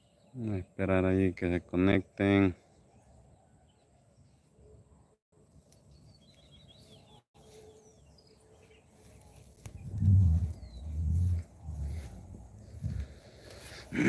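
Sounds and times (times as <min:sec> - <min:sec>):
faint bird chirps: 0:02.6 - 0:12.9.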